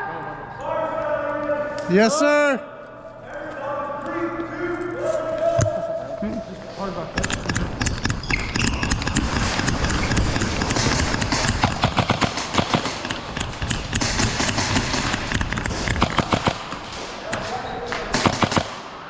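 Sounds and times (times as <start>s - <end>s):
sharp knocks and taps: 7.2s - 16.6s.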